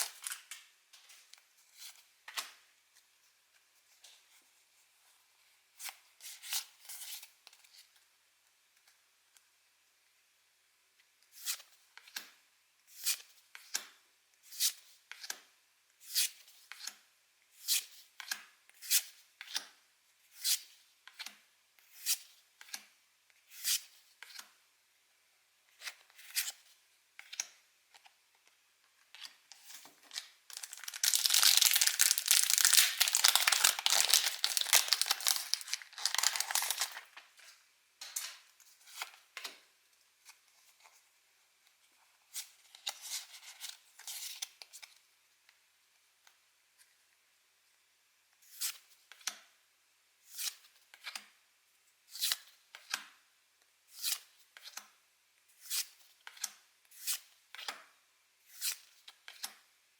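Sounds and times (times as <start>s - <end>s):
foil wrapper crinkling rip: 30.5s - 37.2s.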